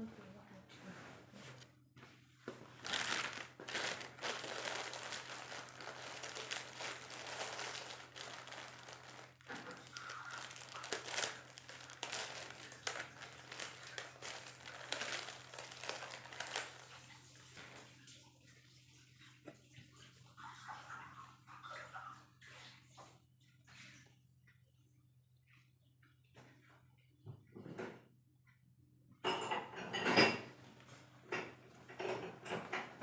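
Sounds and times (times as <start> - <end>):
rustling and crinkling: 0.1 - 18.1.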